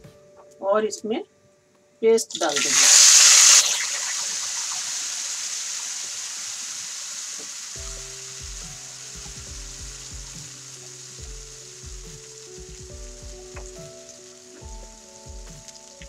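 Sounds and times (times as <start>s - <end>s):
background music with steady beat: 0.0s - 1.0s, 7.8s - 16.0s
paste sizzling in hot oil: 2.3s - 16.0s.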